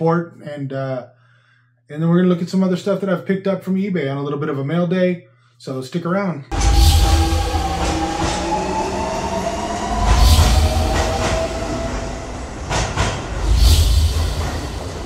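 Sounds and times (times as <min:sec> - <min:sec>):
steady high tone: 0:06.5 - 0:15.0
train rumbling through tunnel: 0:06.5 - 0:15.0.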